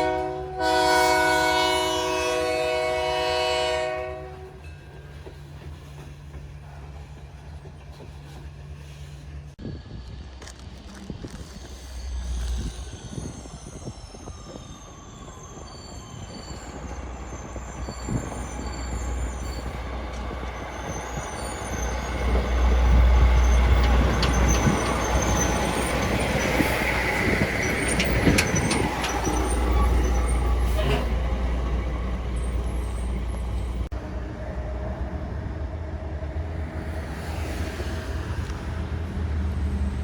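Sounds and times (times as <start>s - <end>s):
thin high squeals: 11.6s - 31.2s
heavy vehicle rumble: 16.8s - 40.0s.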